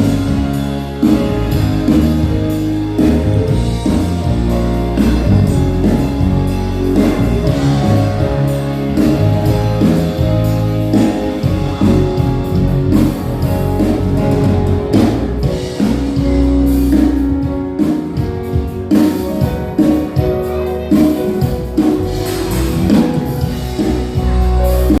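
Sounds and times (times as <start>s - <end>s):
worship band playing: 0.0s - 25.0s
drum hits: 21.4s - 24.6s.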